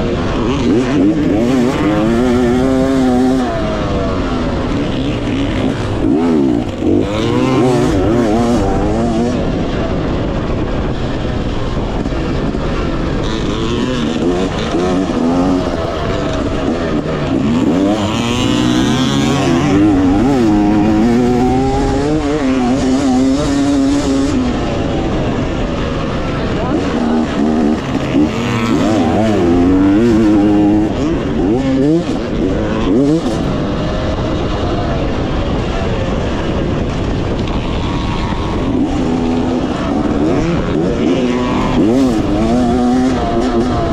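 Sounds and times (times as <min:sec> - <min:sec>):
dirt bike engine revving: 0:00.0 - 0:43.9
wind noise: 0:00.0 - 0:43.9.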